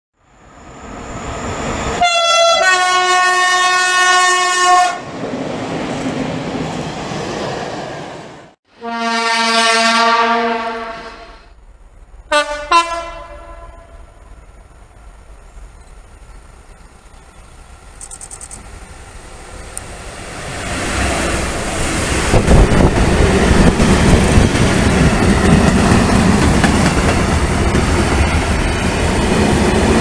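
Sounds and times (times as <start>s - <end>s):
rushing train noise: 0.2s - 30.0s
locomotive horn blasts: 2.0s - 5.0s, 8.7s - 11.5s, 12.3s - 14.2s
lower train horn: 2.0s - 5.0s, 8.7s - 11.5s, 12.3s - 14.3s.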